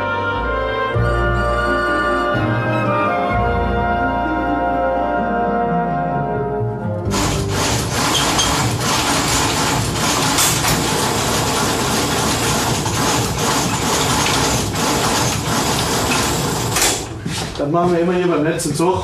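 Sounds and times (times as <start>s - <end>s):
train rumbling and rattling: 7.1s - 18.1s.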